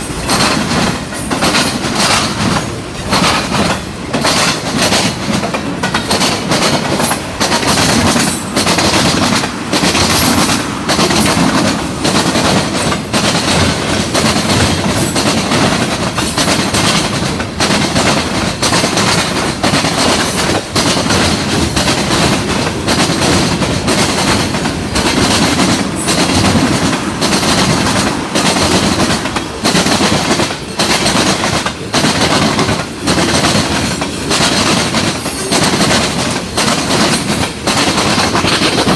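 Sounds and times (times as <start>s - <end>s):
train wheels clattering over rail joints: 0.0s - 38.9s.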